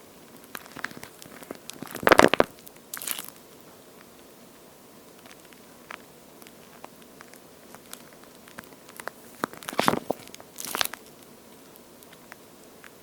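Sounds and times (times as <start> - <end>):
squeeze toy crackling squish: 0.4 - 3.4, 5.2 - 11.3.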